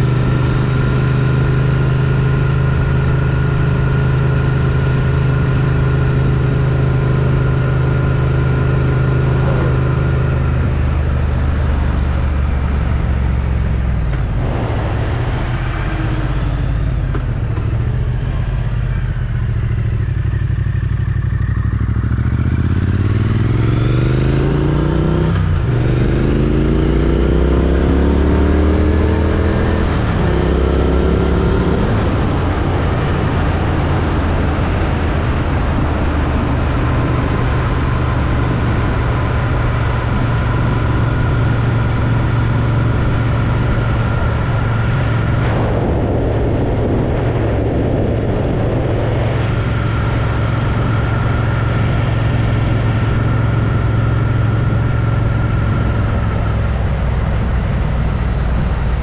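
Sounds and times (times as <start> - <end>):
motorcycle engine accelerating: 0.0 - 59.0
wind rush on microphone: 27.5 - 59.0.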